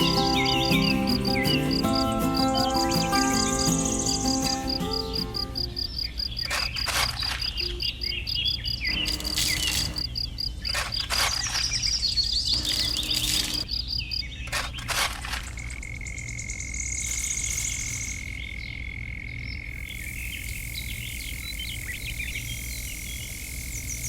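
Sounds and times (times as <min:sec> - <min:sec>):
insect chirping: 0:00.0 - 0:14.6, 0:15.3 - 0:24.0
birds chirping: 0:00.0 - 0:14.9.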